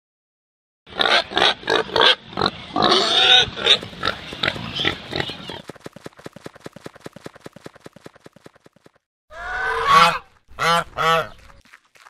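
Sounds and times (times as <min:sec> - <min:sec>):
pig grunting: 0:00.9 - 0:05.6.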